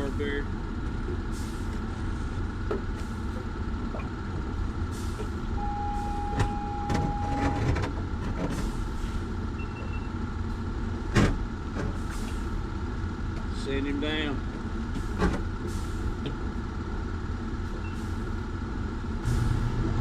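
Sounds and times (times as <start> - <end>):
mechanical hum and rumble: 0.0 - 20.0
electronic beep: 5.6 - 7.7.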